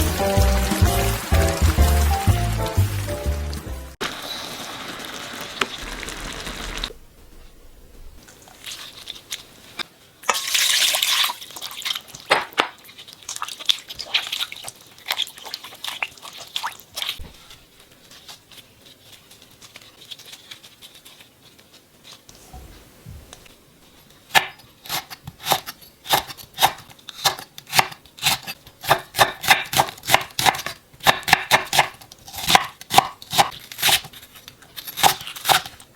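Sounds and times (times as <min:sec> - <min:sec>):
water dripping and splashing: 0:00.0 - 0:04.0, 0:10.3 - 0:17.2
running water rushing: 0:00.0 - 0:04.4
leaves being squeezed: 0:08.2 - 0:09.8.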